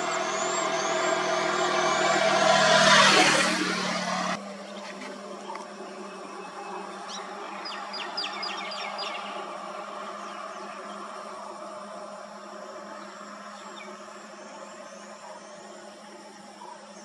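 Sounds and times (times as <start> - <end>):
passing vehicle: 0.0 - 4.8
bird chirping high falling notes: 0.0 - 15.6
outdoor hum and hiss: 0.0 - 17.0.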